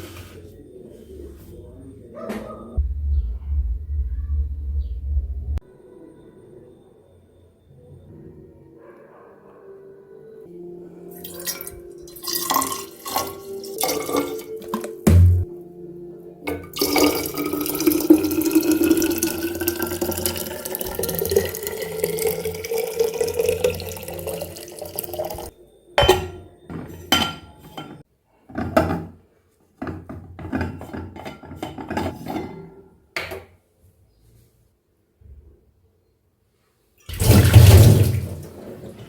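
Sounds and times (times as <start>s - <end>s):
water sloshing in a bottle: 11.1s - 15.4s, 16.6s - 25.5s, 37.1s - 39.0s
water running into a bottle: 11.2s - 15.4s, 16.7s - 25.5s, 37.1s - 39.0s.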